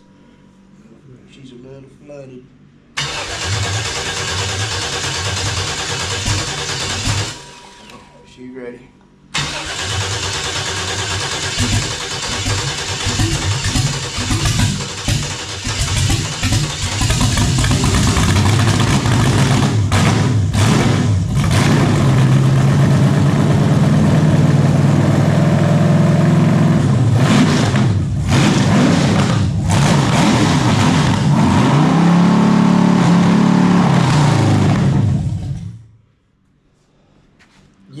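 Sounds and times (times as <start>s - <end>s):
engine running with throttle blips: 9.4s - 35.8s.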